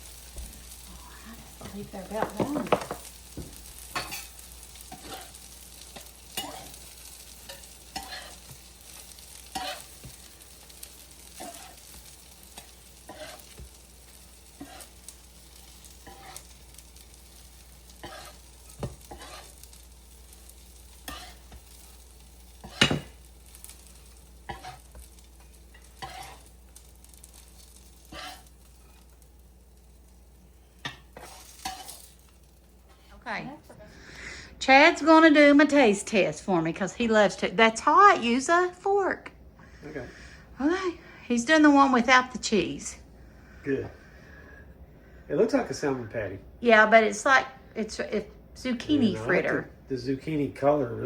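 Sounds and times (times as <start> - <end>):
fritters sizzling on a griddle: 0.0 - 35.8
spatula clicks and scrapes: 18.0 - 19.8, 21.0 - 21.9.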